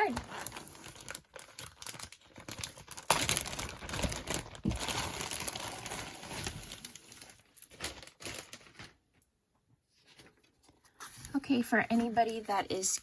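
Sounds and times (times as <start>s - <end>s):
packaging bag crinkling: 0.0s - 9.2s.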